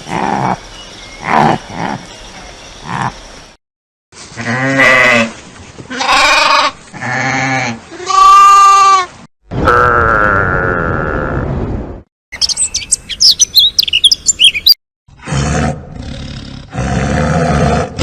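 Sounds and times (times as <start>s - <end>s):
sheep bleating: 5.9s - 9.1s.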